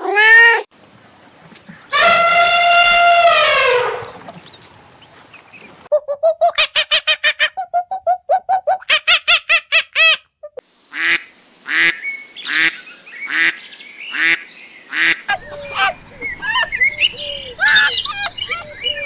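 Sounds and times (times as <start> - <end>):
birds chirping: 3.9 - 6.8, 10.6 - 19.0
light outdoor hiss: 10.6 - 19.0
ducks quacking: 10.9 - 19.0.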